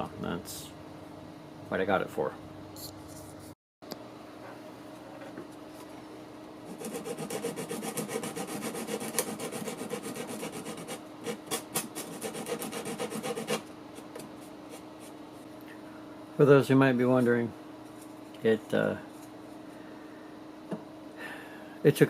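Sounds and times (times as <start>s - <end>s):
wood being rasped by hand: 6.7s - 13.6s.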